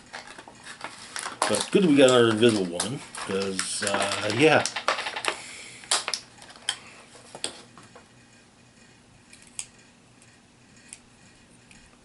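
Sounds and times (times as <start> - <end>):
plastic figures clicking: 1.2 - 6.8.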